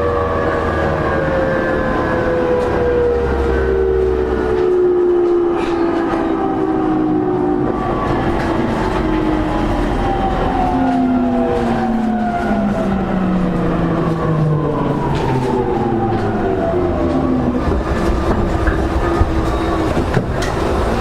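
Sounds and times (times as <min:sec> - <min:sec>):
wheels rumbling on rail: 0:00.0 - 0:21.0.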